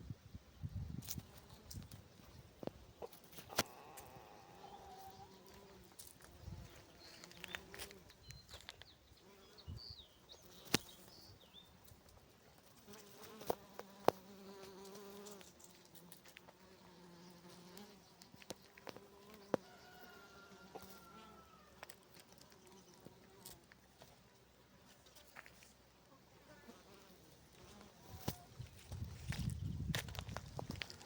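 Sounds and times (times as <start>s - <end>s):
honeybees buzzing: 1.1s - 11.6s, 12.6s - 23.8s.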